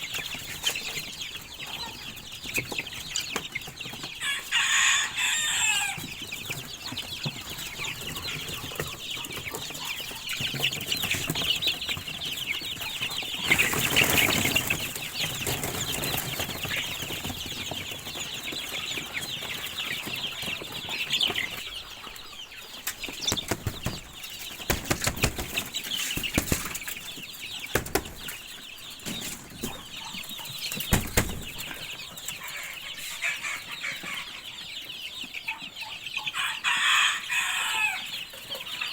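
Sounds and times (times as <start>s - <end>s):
chickens clucking: 0.0s - 38.9s
wing flapping: 23.2s - 26.9s, 30.9s - 31.6s.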